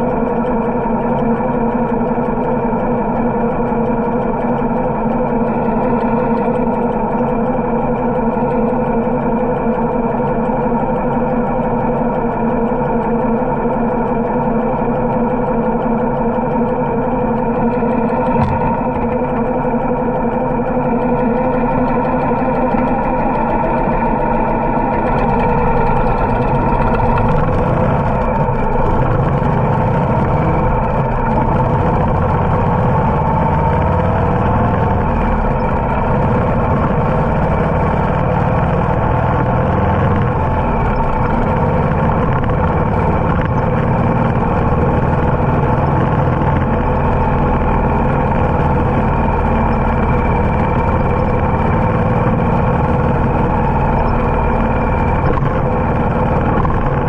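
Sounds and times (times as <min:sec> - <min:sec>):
motorcycle engine cruising: 0:14.2 - 0:57.0
wind and road noise: 0:24.9 - 0:57.0.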